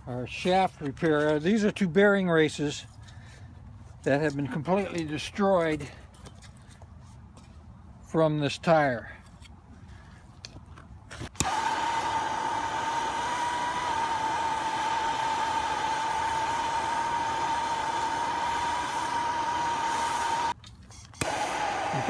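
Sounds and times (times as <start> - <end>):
power tool motor whining: 11.3 - 22.0.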